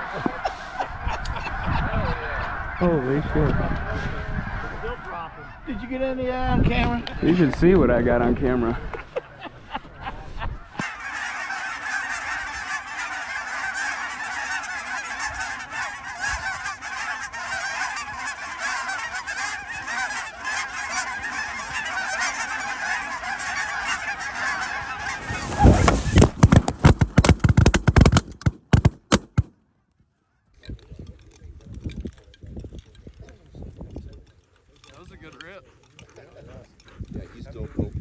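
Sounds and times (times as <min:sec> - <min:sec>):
flock of geese honking: 0:00.0 - 0:05.9, 0:10.8 - 0:29.4
loud thumps and buffeting: 0:22.3 - 0:29.5.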